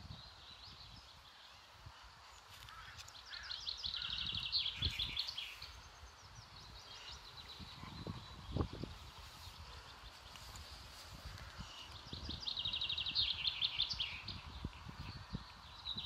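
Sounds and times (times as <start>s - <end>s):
songbird trilling: 2.7s - 8.7s, 11.3s - 16.0s.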